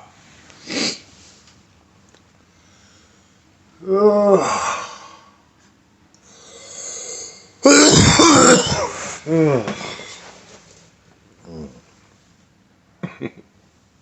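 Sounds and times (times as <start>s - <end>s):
man groaning: 3.8s - 5.1s, 7.6s - 10.0s.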